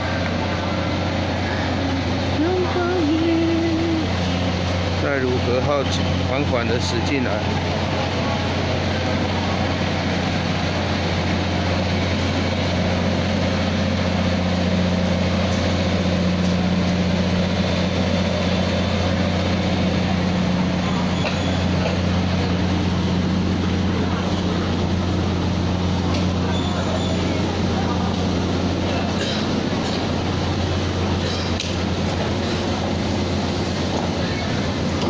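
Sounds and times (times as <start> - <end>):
electric train hum: 0.0 - 35.0
train rumbling: 0.0 - 35.0.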